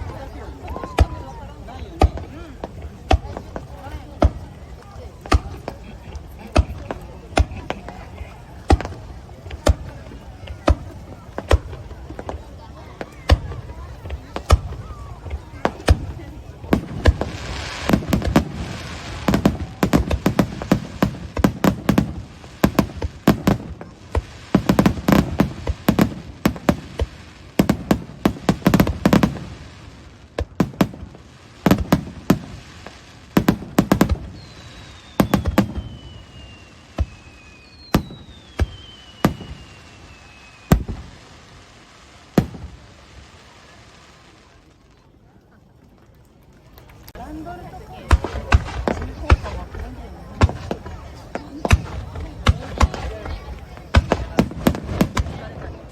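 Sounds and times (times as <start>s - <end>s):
fireworks bangs: 0.0s - 44.6s, 47.1s - 55.9s
firework falling whistles: 33.9s - 41.4s.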